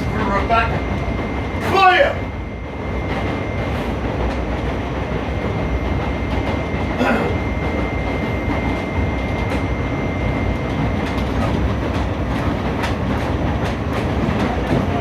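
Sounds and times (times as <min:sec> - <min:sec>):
thin high whine: 0:00.0 - 0:11.8
subway train rumble and wheel noise: 0:00.0 - 0:15.0.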